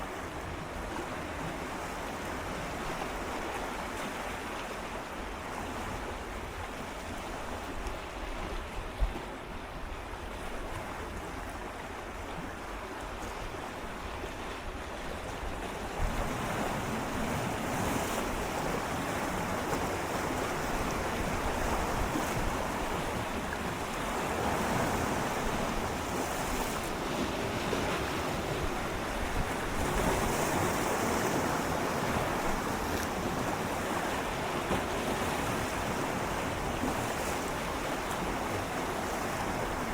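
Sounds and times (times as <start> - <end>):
sea waves lapping against rocks: 10.4 - 39.9.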